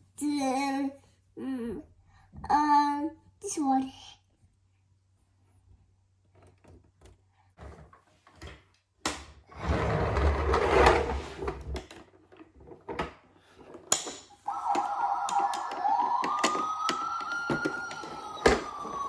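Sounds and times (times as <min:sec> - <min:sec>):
toys rattling and rumbling: 0:09.6 - 0:13.9, 0:14.5 - 0:19.0
plastic toys clicking and knocking: 0:11.7 - 0:19.0.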